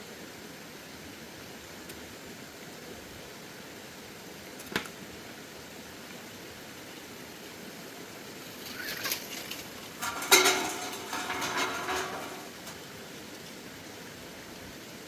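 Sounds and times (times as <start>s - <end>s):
metal scraping: 9.2s - 12.8s.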